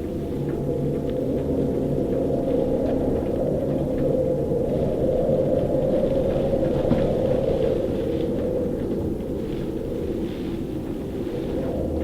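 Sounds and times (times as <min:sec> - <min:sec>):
storm wind in rigging: 0:00.0 - 0:12.0.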